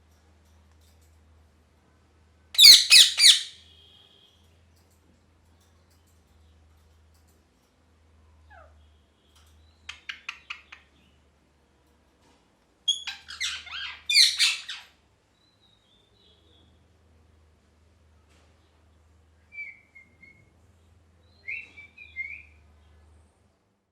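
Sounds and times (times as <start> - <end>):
parrot calling and squawking: 2.6 - 3.6, 12.9 - 15.0.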